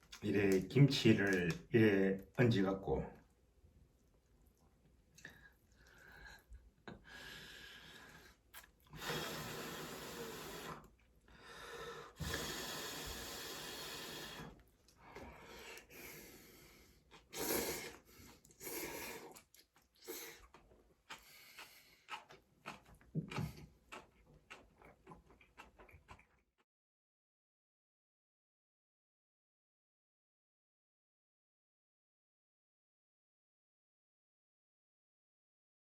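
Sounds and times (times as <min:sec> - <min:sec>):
person chewing: 0:00.0 - 0:01.7, 0:08.1 - 0:09.0, 0:17.1 - 0:26.6.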